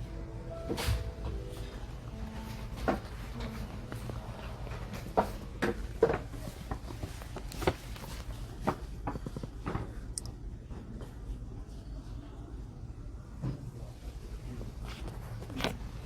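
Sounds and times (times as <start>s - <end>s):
low hum: 0.0s - 6.0s
footsteps: 0.0s - 9.5s.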